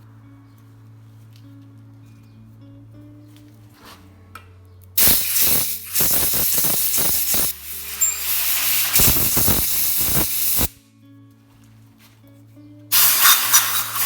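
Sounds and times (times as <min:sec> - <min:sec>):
pressurised spray hissing: 0:05.0 - 0:10.8, 0:12.9 - 0:14.0.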